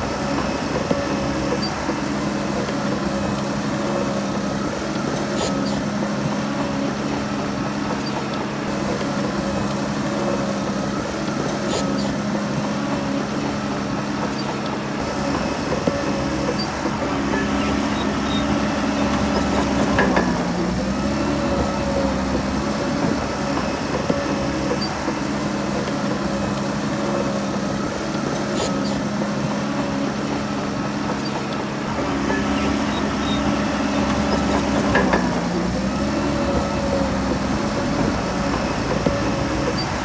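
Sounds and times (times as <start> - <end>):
heavy diesel engine running: 0.0 - 40.0.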